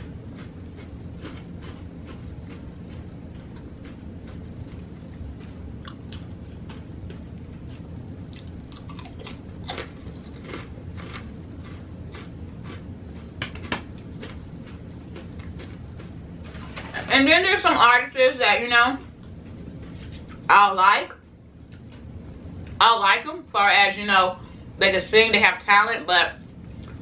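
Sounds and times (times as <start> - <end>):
person chewing food: 0.0 - 16.9
low steady hum: 0.0 - 27.0.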